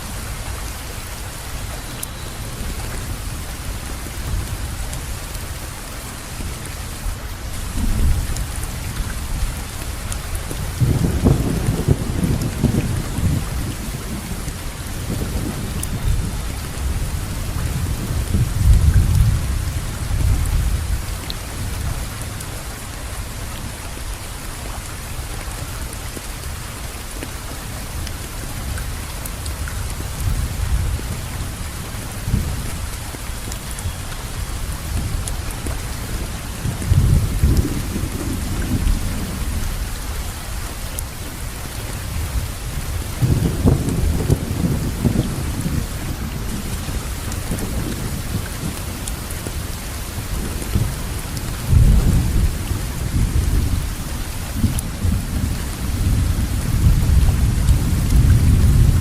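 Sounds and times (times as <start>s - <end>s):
steady rain falling: 0.0s - 59.0s
distant thunder rumbles: 10.4s - 21.0s, 42.3s - 49.7s.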